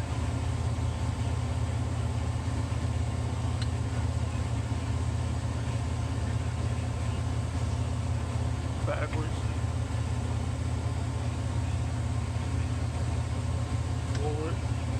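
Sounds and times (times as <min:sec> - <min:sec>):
low mechanical drone: 0:00.0 - 0:14.9
faint click: 0:03.6 - 0:03.8.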